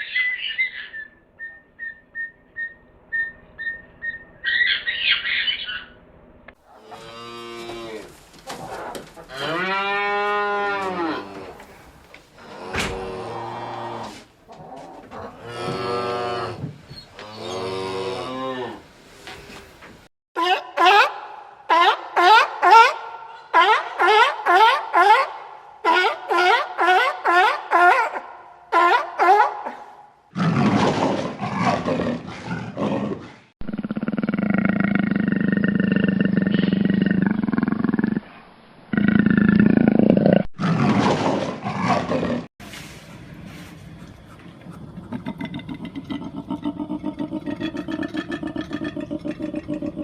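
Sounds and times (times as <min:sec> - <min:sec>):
cow mooing: 0:06.8 - 0:08.1, 0:09.3 - 0:11.6
large animal roaring: 0:12.4 - 0:14.1, 0:30.4 - 0:42.5.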